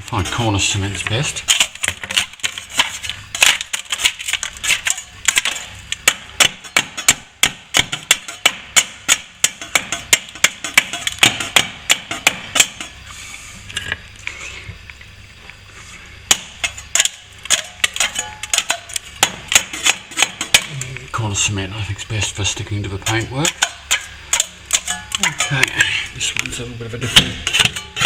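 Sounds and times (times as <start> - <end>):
hand tool chipping plaster: 0.2 - 12.9, 16.3 - 20.8, 23.0 - 25.8.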